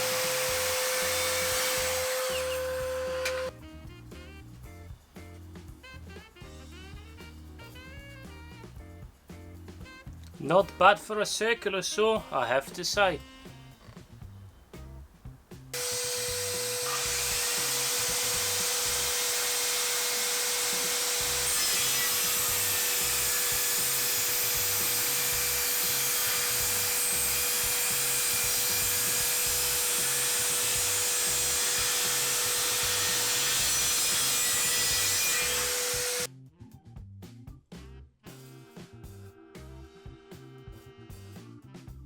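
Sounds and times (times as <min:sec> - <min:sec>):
circular saw cutting wood: 0:00.0 - 0:03.5, 0:15.8 - 0:36.3.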